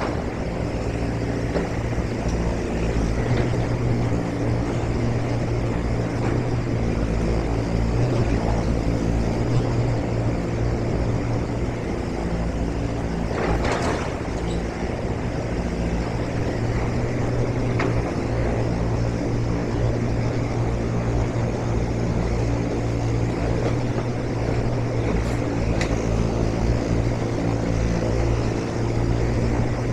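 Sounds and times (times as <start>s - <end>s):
engine droning: 0.0s - 29.9s.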